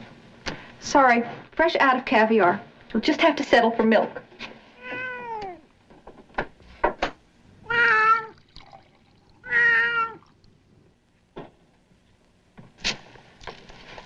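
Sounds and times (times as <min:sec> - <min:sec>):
cat meowing: 0:04.8 - 0:05.7, 0:07.6 - 0:08.4, 0:09.4 - 0:10.3.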